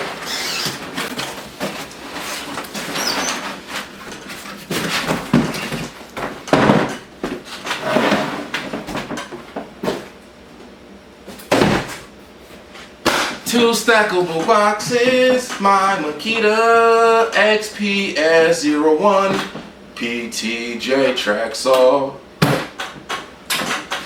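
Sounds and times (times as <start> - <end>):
cardboard rustling and scraping: 0.0 - 10.2
tool cases thumping: 0.0 - 10.2, 11.3 - 12.1.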